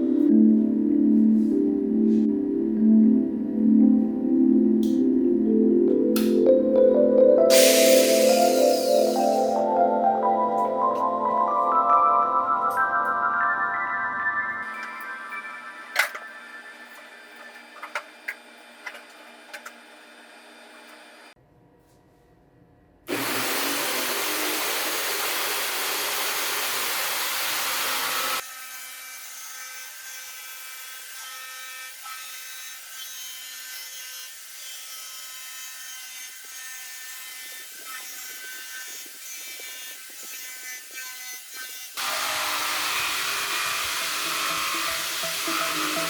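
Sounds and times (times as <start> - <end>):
jigsaw cutting wood: 23.1 - 46.0.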